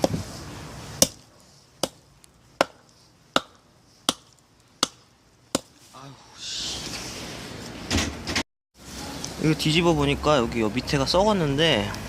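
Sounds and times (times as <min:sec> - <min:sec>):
hatchet chopping log: 0:01.0 - 0:02.0, 0:02.6 - 0:05.8.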